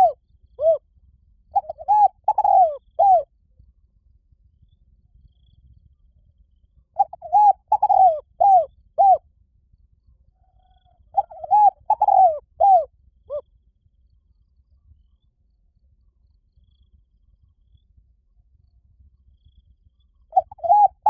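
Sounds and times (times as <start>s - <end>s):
dove cooing: 0.0s - 0.8s, 1.6s - 3.3s, 7.0s - 9.2s, 10.5s - 13.4s, 20.3s - 21.0s.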